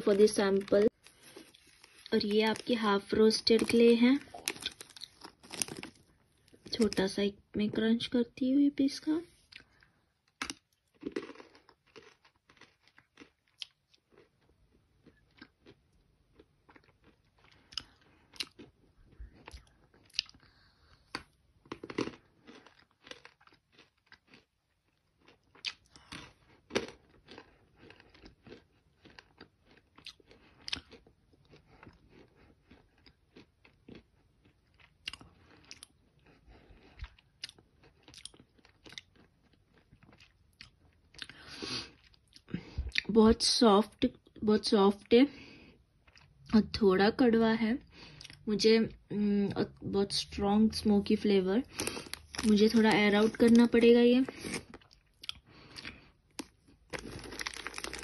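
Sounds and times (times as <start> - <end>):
quiet chewing: 9.3 - 43.1, 45.5 - 46.5, 51.6 - 58.0.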